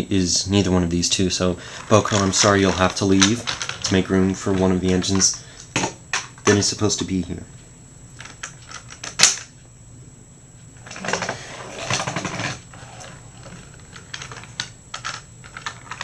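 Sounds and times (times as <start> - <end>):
plastic toys rustling and scraping: 1.7 - 6.8, 8.2 - 9.5, 10.8 - 16.0.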